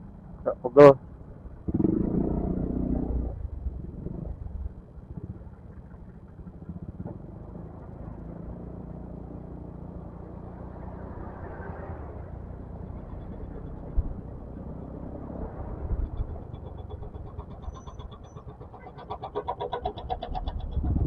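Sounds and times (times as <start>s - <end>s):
road noise: 0.0s - 21.0s
scooter engine hum: 0.0s - 21.0s
wind noise: 13.2s - 18.5s, 20.0s - 21.0s.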